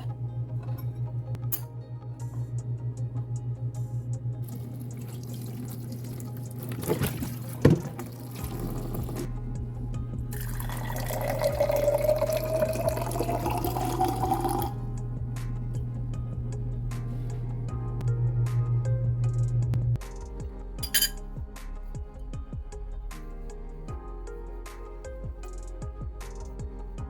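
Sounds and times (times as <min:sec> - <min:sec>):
background music: 0:00.0 - 0:27.0
water running from a tap: 0:04.4 - 0:09.3, 0:10.4 - 0:14.8.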